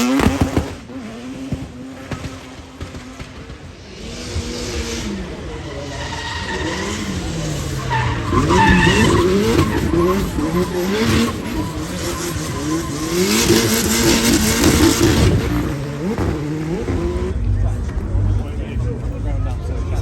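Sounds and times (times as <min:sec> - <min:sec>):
car engine revving: 0:00.0 - 0:20.0
tyre squeal: 0:05.6 - 0:17.0.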